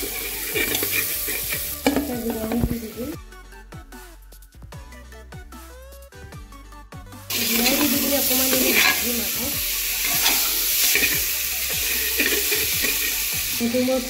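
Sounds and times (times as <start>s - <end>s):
metal spatula scraping a pot: 0.0s - 2.4s, 7.3s - 13.3s
food sizzling in hot oil: 0.0s - 3.2s, 7.3s - 14.0s
music with a beat: 0.0s - 8.5s, 9.1s - 13.6s.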